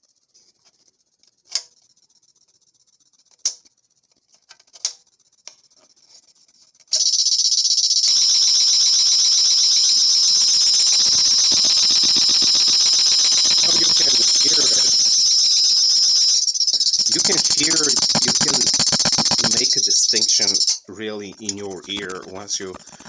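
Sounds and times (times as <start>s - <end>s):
high-pitched pulsing sound: 8.1s - 20.7s
short sharp clicks: 17.0s - 20.5s.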